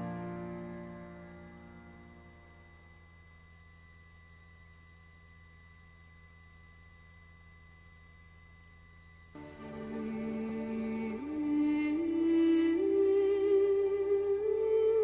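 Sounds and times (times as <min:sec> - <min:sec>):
music: 0:00.0 - 0:02.9, 0:09.4 - 0:15.0
faint steady hum: 0:00.0 - 0:15.0.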